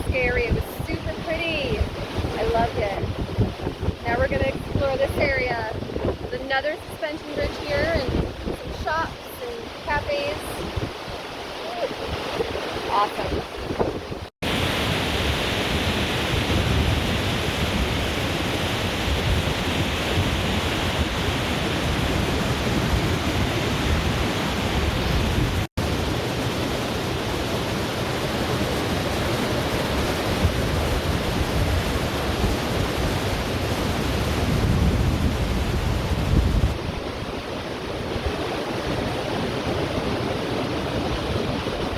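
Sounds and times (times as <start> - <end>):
fast-flowing river water rushing: 14.4 - 41.9.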